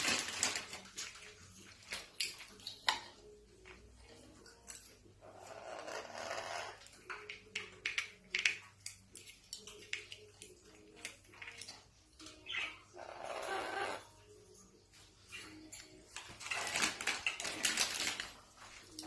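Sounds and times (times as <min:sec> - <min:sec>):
parrot screeching: 0:05.2 - 0:06.8, 0:12.5 - 0:14.1.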